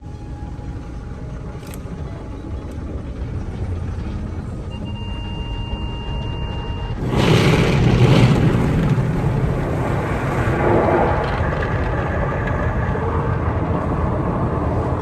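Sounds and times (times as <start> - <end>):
loud rushing roar: 7.0 - 15.0.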